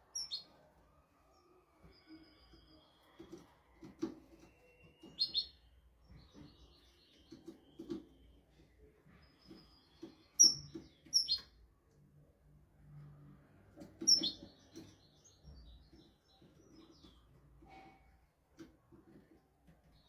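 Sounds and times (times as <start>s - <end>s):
finch singing: 14.0s - 17.2s.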